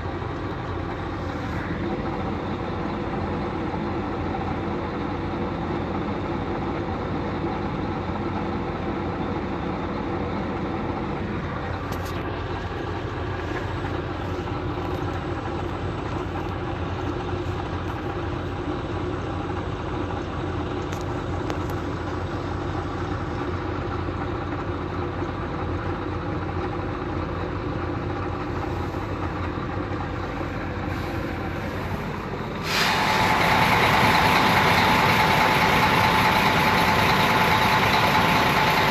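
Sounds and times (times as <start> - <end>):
vehicle engine running: 0.0 - 38.9
loud even hiss: 30.8 - 35.0.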